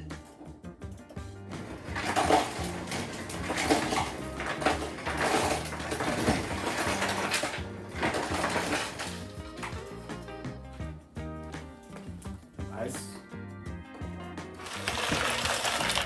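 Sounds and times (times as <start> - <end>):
ice cubes clattering into container: 1.7 - 9.3, 14.6 - 16.0.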